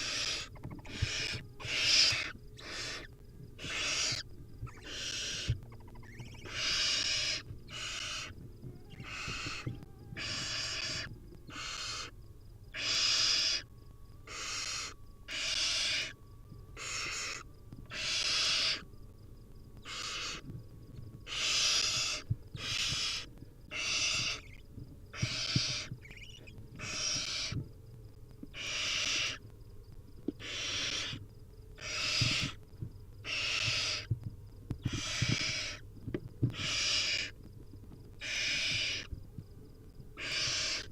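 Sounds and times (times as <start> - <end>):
owl nestlings hissing begging calls: 0.0 - 12.1, 12.7 - 13.6, 14.3 - 16.2, 16.8 - 18.8, 19.8 - 20.4, 21.3 - 27.6, 28.5 - 29.4, 30.4 - 31.2, 31.8 - 32.6, 33.2 - 34.1, 34.8 - 35.8, 36.5 - 37.4, 38.2 - 39.1, 40.2 - 40.9.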